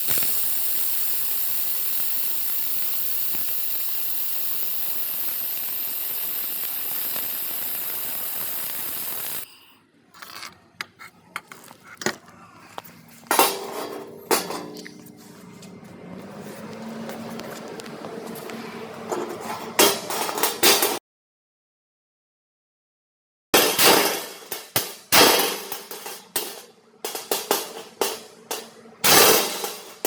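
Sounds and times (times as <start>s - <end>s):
laser welding hiss: 0.0s - 9.5s, 23.9s - 30.0s.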